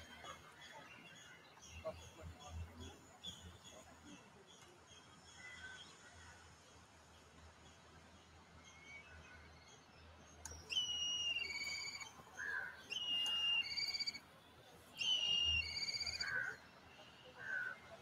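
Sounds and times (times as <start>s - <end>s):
songbird singing: 10.4s - 14.2s, 15.0s - 17.8s.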